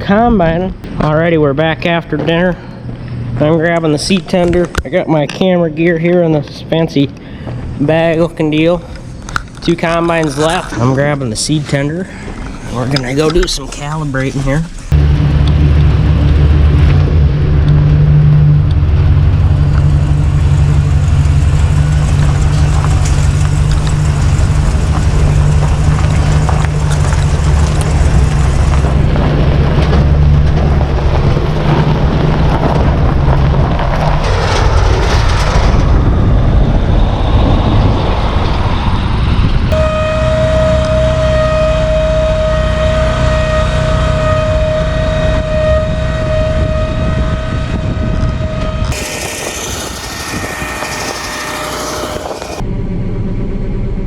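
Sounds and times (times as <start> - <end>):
high mechanical whine: 0.0 - 54.0
heavy vehicle engine running: 12.0 - 54.0.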